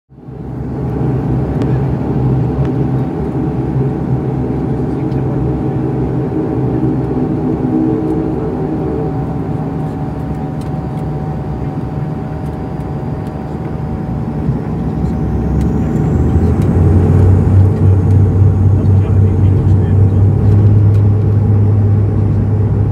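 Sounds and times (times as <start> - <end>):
turboprop engines droning: 0.1 - 22.9.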